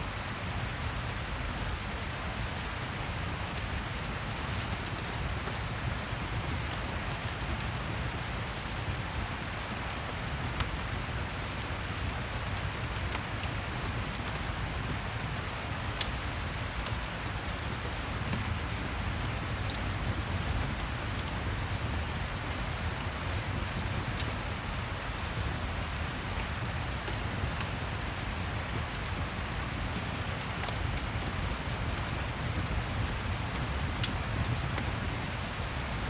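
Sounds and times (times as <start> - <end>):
steady rain hiss: 0.0 - 36.0
fireplace crackling: 2.2 - 9.0.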